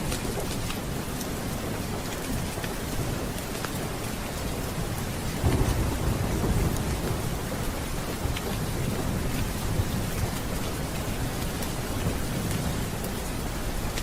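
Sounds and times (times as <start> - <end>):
steady rain: 0.0 - 14.0
low thunder rumble: 4.8 - 13.8.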